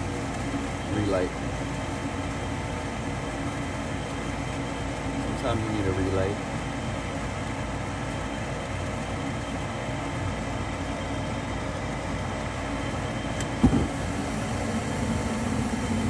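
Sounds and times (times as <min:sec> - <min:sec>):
furnace fan whirring: 0:00.0 - 0:16.0
thump: 0:13.6 - 0:14.0.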